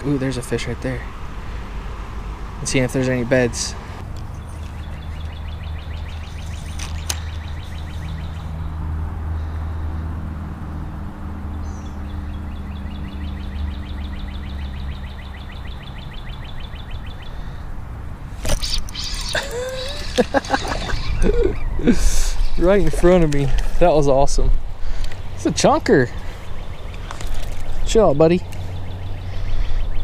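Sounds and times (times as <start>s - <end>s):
bird trilling: 18.4s - 22.8s.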